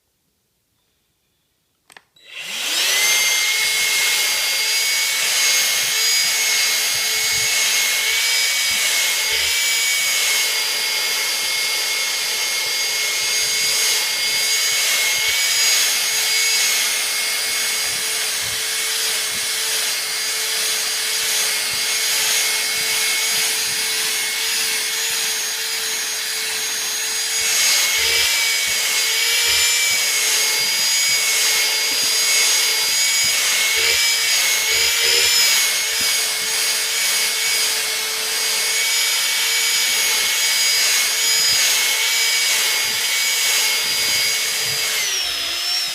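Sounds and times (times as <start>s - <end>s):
vacuum cleaner motor whine: 2.2s - 45.9s.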